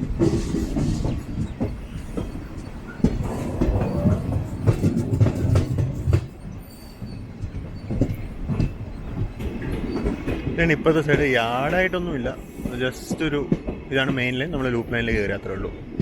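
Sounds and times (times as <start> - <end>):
low train rumble: 0.0 - 16.0
train wheels clattering over rails: 0.0 - 16.0.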